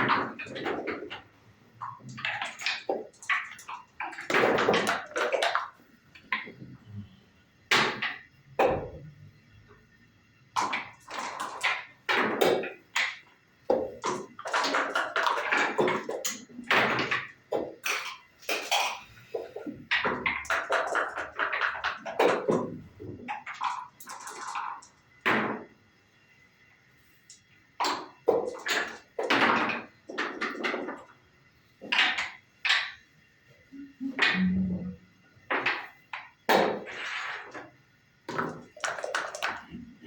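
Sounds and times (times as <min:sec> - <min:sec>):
dice bouncing on board: 0:00.0 - 0:06.6, 0:10.6 - 0:19.0, 0:19.6 - 0:25.7, 0:27.8 - 0:31.1, 0:31.8 - 0:33.0, 0:38.3 - 0:39.9.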